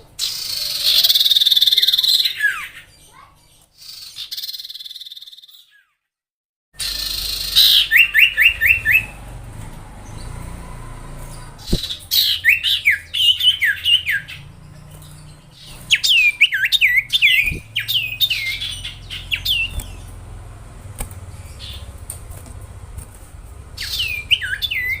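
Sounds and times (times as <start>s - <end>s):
songbird whistling: 0.2s - 2.9s, 3.8s - 5.9s, 6.8s - 9.2s, 11.4s - 20.2s, 23.8s - 25.0s
steady low hum: 14.3s - 25.0s.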